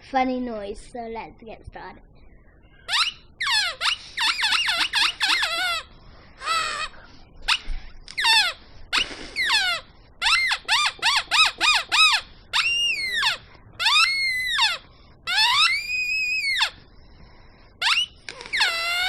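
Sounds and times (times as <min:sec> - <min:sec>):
high-pitched descending squeaks: 0:02.9 - 0:16.8, 0:17.8 - 0:19.0.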